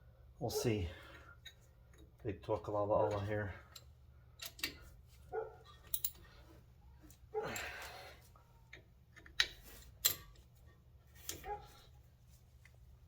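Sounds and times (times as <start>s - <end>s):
metallic clicks of tools: 3.7s - 4.9s.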